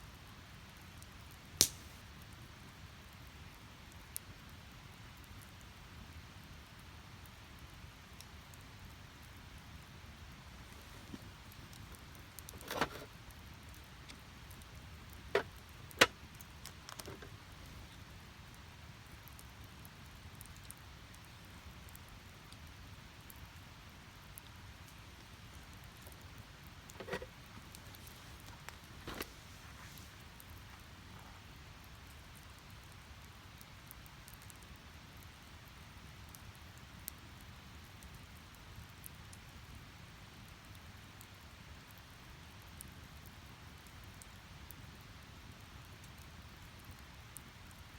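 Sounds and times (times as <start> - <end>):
wood fire crackling: 0.1 - 47.9
fire hissing: 1.5 - 2.1, 10.2 - 19.2, 25.0 - 31.7.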